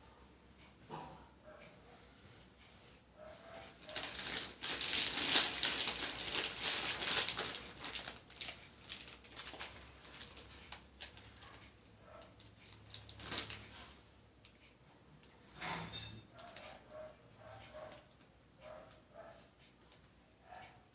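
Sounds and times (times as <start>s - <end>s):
popcorn being crunched: 3.8s - 11.2s, 12.6s - 13.8s.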